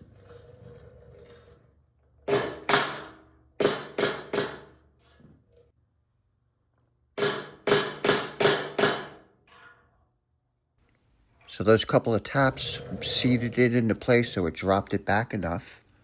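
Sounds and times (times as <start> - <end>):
sharp knocks on metal pipe: 2.3 - 4.8, 7.2 - 9.3.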